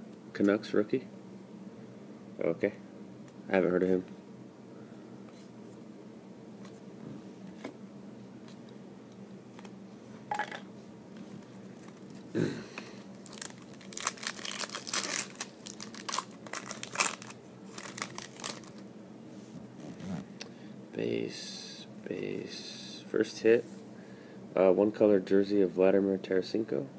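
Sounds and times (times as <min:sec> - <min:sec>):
packaging crinkling and tearing: 0:13.1 - 0:18.8.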